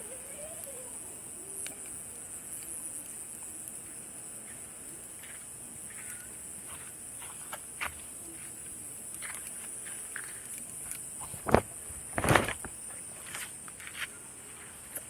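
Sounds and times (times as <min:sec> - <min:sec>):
campfire crackling: 0:00.0 - 0:15.0
night insects chorus: 0:00.0 - 0:15.0.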